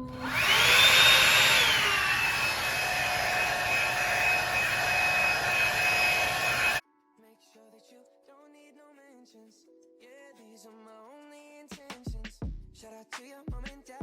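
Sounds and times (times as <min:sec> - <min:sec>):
hair dryer motor whine: 0:00.0 - 0:06.8
rushing air: 0:00.2 - 0:06.8.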